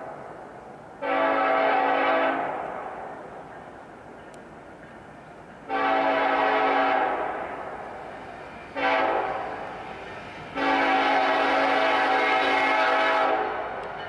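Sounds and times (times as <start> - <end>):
locomotive air horn chord: 1.0 - 2.5, 5.7 - 7.4, 8.7 - 9.6, 10.5 - 13.7.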